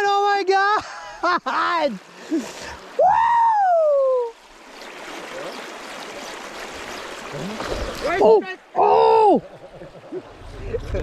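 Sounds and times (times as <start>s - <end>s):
river water rushing: 1.7s - 10.6s
man whooping: 3.0s - 4.4s.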